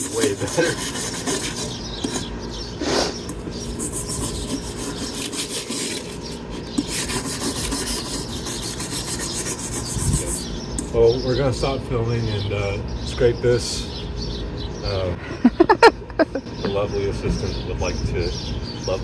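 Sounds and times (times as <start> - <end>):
scraping on metal helmet: 0.0 - 2.4, 3.2 - 10.9.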